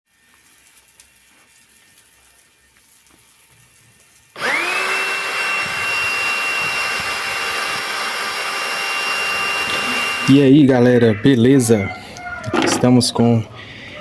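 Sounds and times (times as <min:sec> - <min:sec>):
electric motor whining: 0:04.4 - 0:10.3.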